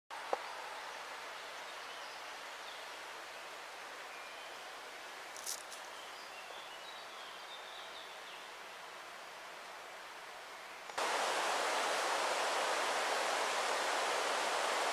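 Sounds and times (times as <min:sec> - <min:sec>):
brief rustle: 0:05.3 - 0:05.9
rain and wind hissing: 0:08.3 - 0:14.9.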